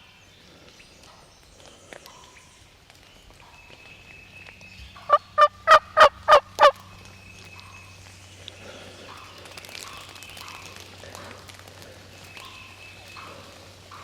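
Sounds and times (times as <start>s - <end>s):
turkey yelps: 5.1s - 6.8s.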